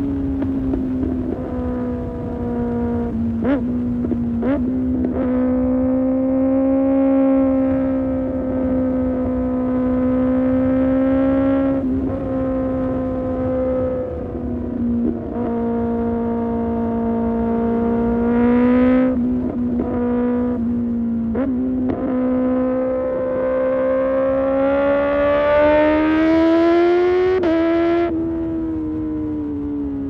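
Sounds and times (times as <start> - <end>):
motorcycle engine revving high: 0.0 - 30.0.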